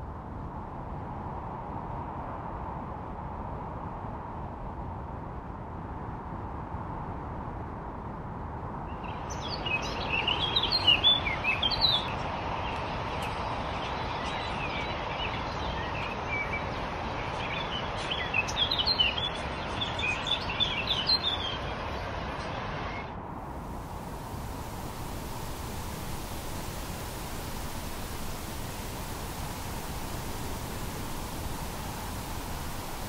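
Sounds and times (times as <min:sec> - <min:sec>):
songbirds twittering: 0:08.9 - 0:21.7
background hiss: 0:09.0 - 0:16.2, 0:21.8 - 0:33.0.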